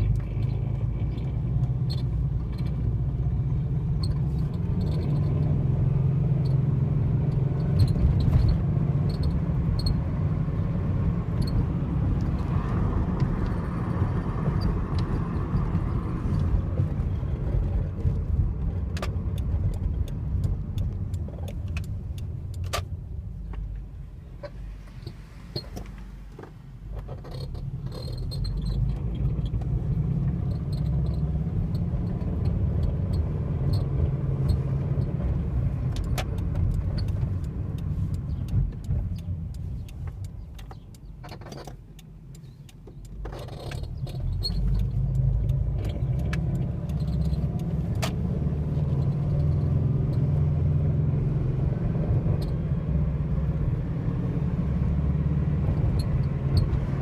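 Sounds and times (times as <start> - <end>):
car driving rumble: 0.0 - 57.0.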